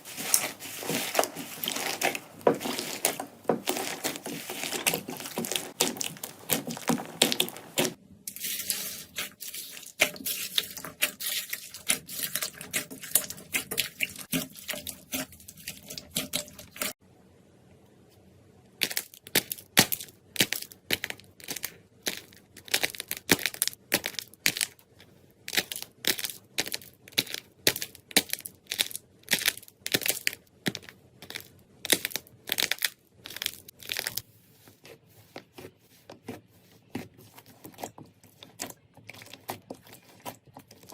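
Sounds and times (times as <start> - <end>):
slime crackling and popping: 0.1 - 8.0, 18.8 - 24.8, 25.5 - 34.2.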